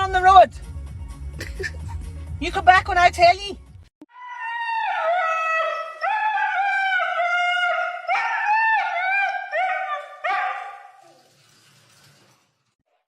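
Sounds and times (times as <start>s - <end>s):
dog howling: 4.1s - 11.2s.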